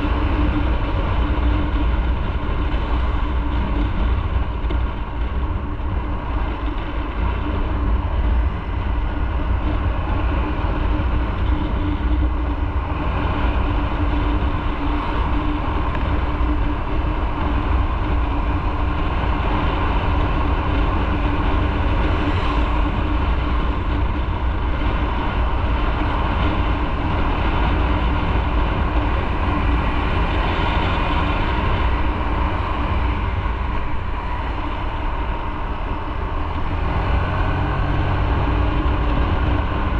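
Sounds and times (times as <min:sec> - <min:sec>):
motorcycle engine running: 0:00.0 - 0:39.9
road noise: 0:00.0 - 0:39.9
wind on microphone: 0:00.0 - 0:39.9.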